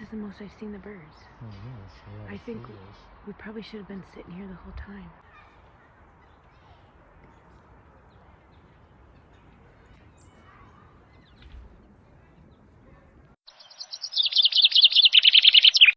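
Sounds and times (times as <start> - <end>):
faint songbird chirps: 13.5 - 15.9
fast repeated bird chirping: 13.5 - 15.9.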